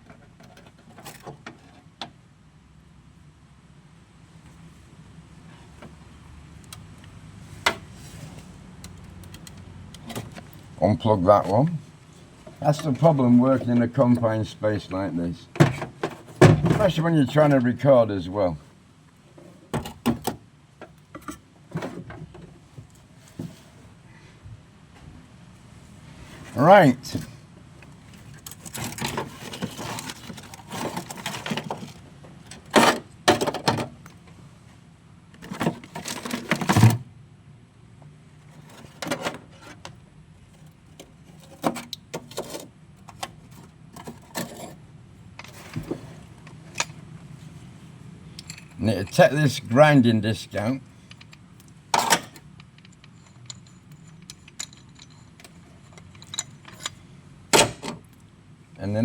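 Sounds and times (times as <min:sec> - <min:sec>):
tools and metal handled: 0:41.3 - 0:44.8, 0:51.0 - 0:57.0.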